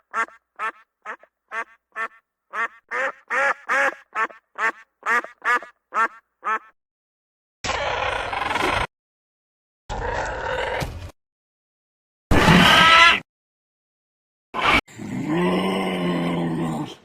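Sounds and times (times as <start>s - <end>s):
animal giving short pitched calls: 0.0s - 6.7s.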